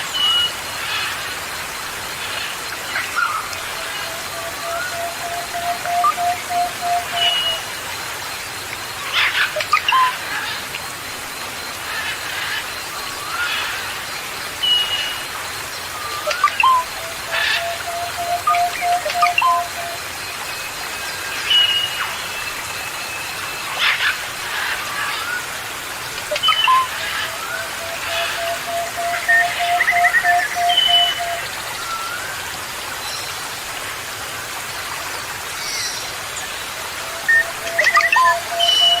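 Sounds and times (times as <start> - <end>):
rain-like hiss: 0.0 - 39.0
songbirds chirping and whistling: 15.9 - 20.0, 26.3 - 32.2, 37.3 - 39.0.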